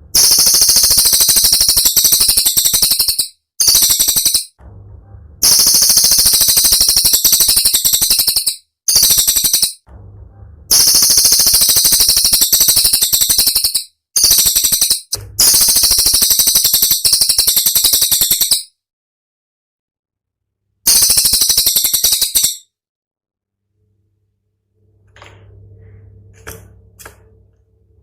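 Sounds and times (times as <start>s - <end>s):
songbird rattling trills: 0.2s - 4.6s, 5.4s - 9.8s, 10.7s - 18.7s, 20.9s - 22.6s.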